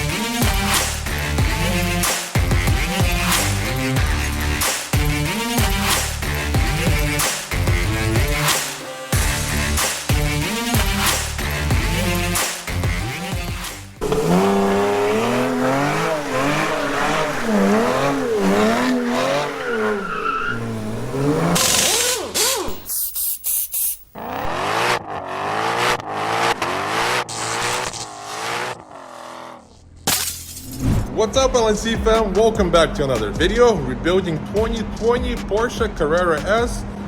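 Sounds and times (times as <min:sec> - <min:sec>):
car engine revving: 0:09.2 - 0:22.9, 0:24.2 - 0:30.0, 0:32.8 - 0:37.0
tyre squeal: 0:14.0 - 0:24.0.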